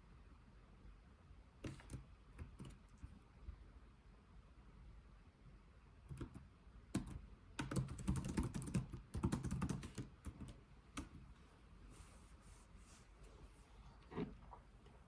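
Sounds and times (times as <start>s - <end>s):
computer keyboard typing: 1.6s - 2.8s, 6.1s - 11.2s.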